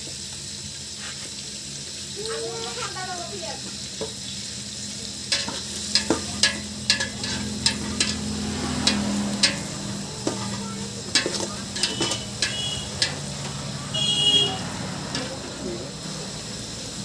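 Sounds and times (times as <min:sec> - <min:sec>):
food sizzling in oil: 0:00.0 - 0:17.0
spatula scraping and knocking pan: 0:05.3 - 0:14.4.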